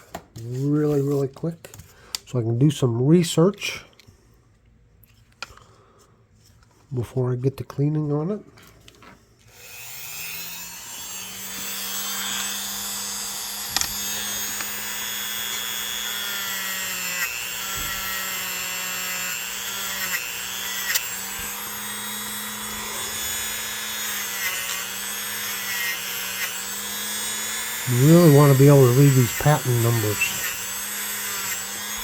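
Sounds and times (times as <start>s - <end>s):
electric rotary tool running: 9.5s - 32.0s.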